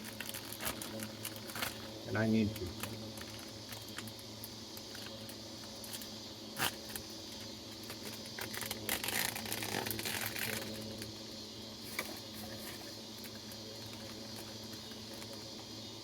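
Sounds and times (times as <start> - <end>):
packaging crinkling: 0.0 - 11.1.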